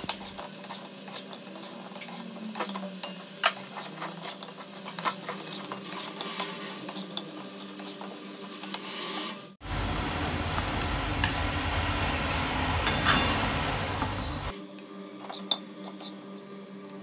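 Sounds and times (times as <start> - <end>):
metal spatula scraping a pan: 0.0 - 9.4
chicken sizzling in a wok: 0.0 - 17.0.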